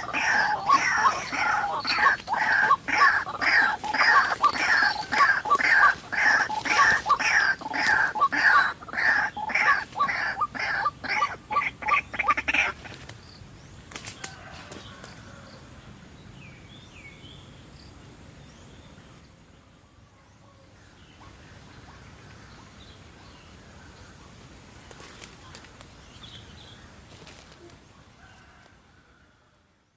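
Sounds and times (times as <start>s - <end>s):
bird croaking call: 0.0s - 13.0s.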